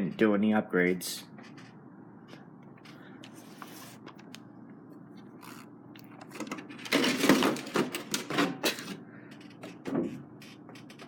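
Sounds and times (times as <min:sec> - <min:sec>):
objects clattering and scraping: 0:06.2 - 0:11.0.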